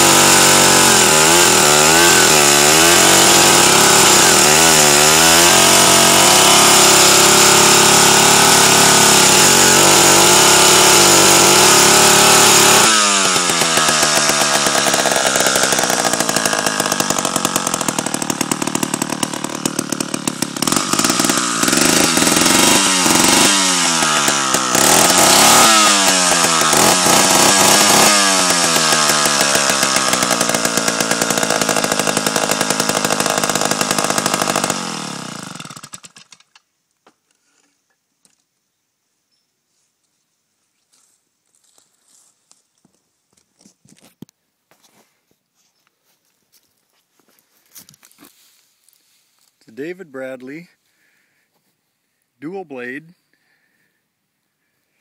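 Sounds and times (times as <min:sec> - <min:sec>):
chainsaw running: 0:00.0 - 0:36.6.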